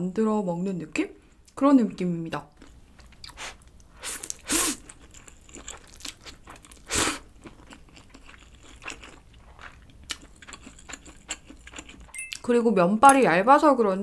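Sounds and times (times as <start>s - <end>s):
chewing noodles with wet smacks: 2.6s - 12.1s.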